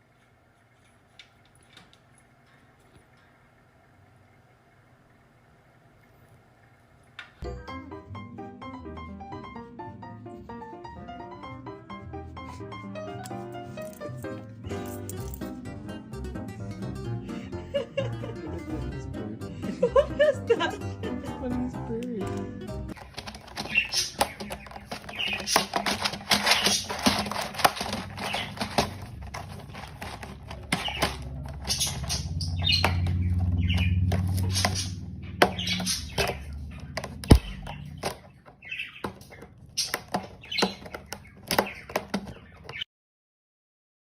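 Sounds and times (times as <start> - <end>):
wing flapping: 23.0 - 38.2
bird chirping: 23.2 - 29.0, 30.0 - 42.9.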